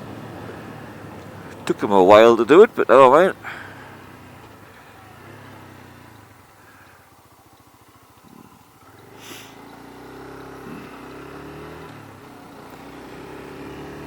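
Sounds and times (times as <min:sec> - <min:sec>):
vehicle engine throbbing: 0:00.0 - 0:14.0
short hiss: 0:09.0 - 0:09.7.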